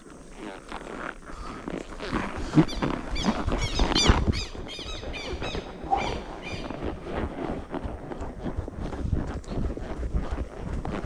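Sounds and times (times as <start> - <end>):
wind noise: 0.0 - 11.0
bird squawking: 2.5 - 7.2.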